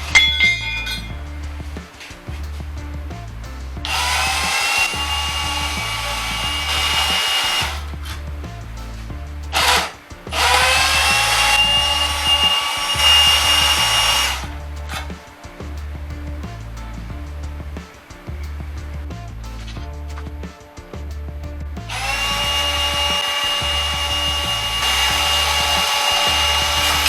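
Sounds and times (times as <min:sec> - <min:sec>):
background music with steady beat: 0:00.0 - 0:27.0
power tool motor whining: 0:21.9 - 0:27.0.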